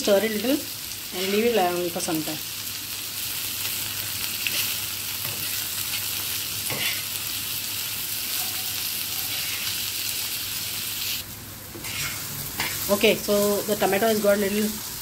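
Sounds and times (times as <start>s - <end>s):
onions sizzling in oil: 0.0s - 15.0s
spatula scraping and stirring: 1.2s - 1.6s, 4.4s - 7.1s, 9.2s - 9.8s, 11.7s - 13.0s.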